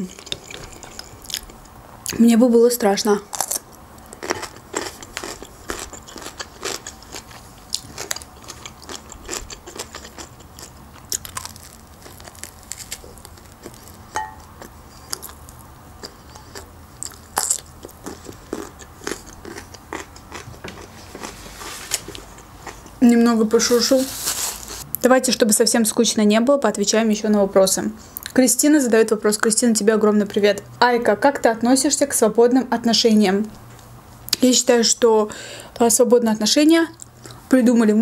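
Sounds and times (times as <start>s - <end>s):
person chewing wetly: 0.2s - 2.2s, 3.3s - 23.0s
crunching: 3.3s - 22.9s.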